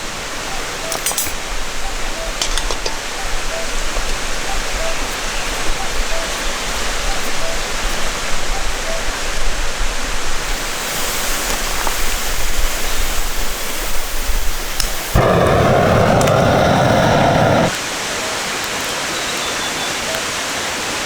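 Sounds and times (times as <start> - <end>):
stream rushing: 10.4 - 21.0
deep rushing noise: 14.4 - 17.8.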